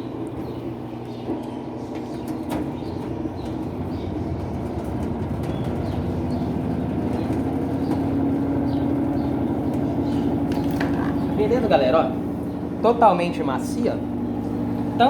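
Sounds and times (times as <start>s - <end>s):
washing machine spinning hum: 0.0s - 15.0s.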